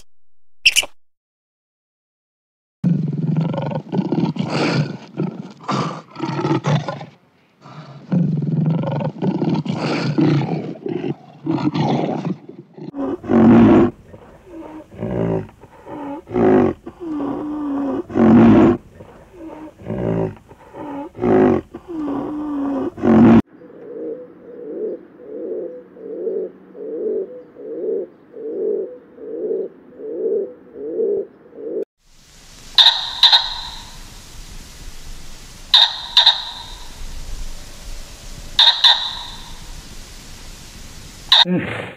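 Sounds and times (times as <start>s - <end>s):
lions roaring and growling: 2.9s - 23.4s
pigeon cooing: 12.8s - 31.8s, 32.8s - 34.8s, 35.4s - 37.3s, 38.2s - 41.5s
pitched animal calls: 12.8s - 31.8s, 32.6s - 41.7s.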